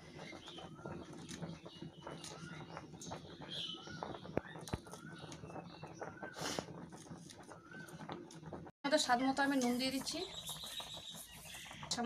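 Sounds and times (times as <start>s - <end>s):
bird chirping: 0.2s - 6.4s, 10.0s - 12.0s.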